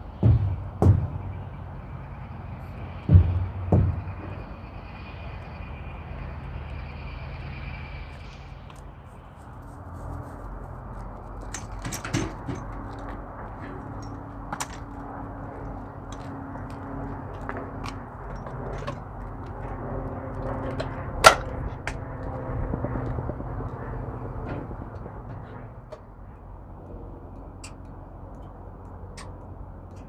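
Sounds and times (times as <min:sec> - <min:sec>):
diesel engine idling: 0:00.0 - 0:30.0
sharp clicks and knocks: 0:11.0 - 0:30.0.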